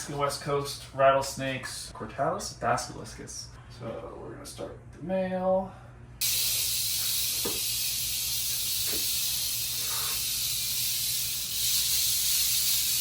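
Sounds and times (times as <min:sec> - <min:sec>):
rattlesnake rattling: 0:06.2 - 0:13.0.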